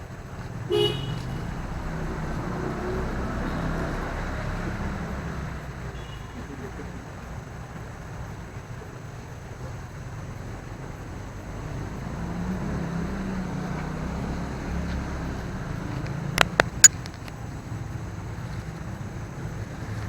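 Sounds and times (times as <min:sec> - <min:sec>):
engine rumbling: 0:00.0 - 0:20.0.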